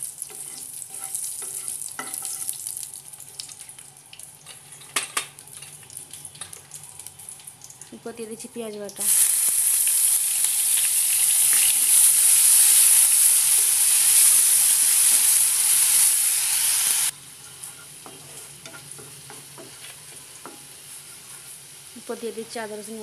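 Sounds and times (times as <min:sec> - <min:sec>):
onion paste sizzling in oil: 0:00.0 - 0:23.0
spatula tapping and scraping: 0:00.3 - 0:02.6, 0:17.4 - 0:21.6.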